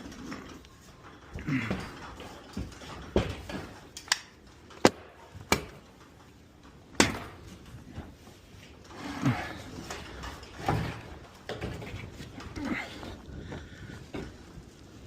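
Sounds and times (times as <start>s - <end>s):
wooden knocks and clacks: 1.4s - 8.3s.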